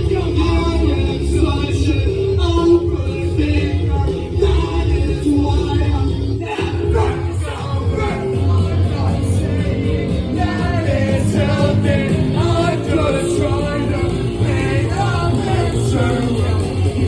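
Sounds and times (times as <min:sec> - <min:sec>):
heavy steady bass: 0:00.0 - 0:17.0
person singing: 0:00.0 - 0:17.0
rock band playing live: 0:05.5 - 0:17.0.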